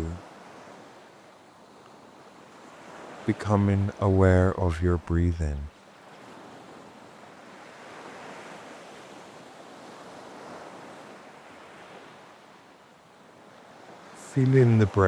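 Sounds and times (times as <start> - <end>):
ocean waves washing in: 5.7 - 15.0.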